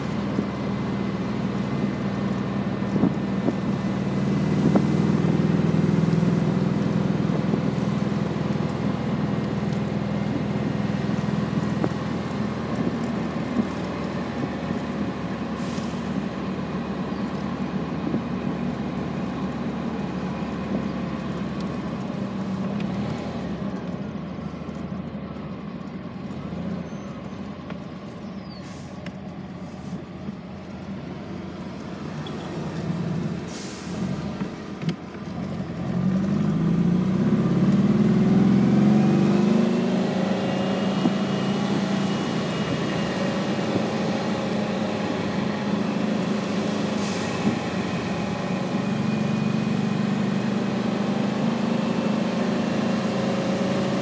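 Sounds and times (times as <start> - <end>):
car engine running: 0.0 - 33.3
tyre and wind noise: 1.6 - 5.8, 6.4 - 15.9.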